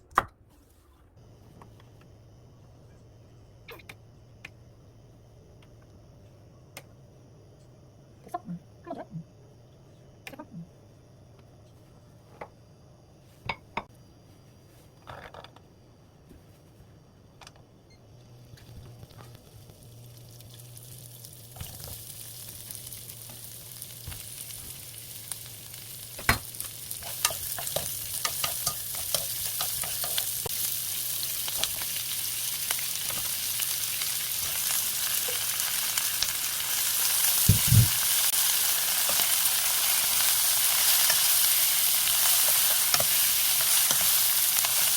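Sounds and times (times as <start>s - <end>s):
food sizzling in oil: 18.6s - 44.9s.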